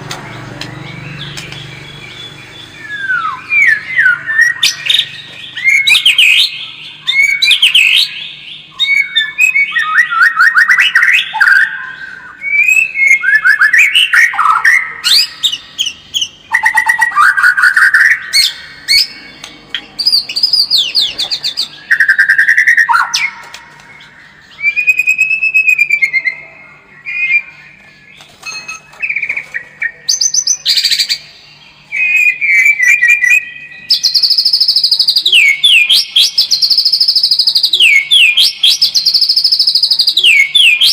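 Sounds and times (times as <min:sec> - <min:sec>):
songbird singing varied song: 0:00.0 - 0:40.9.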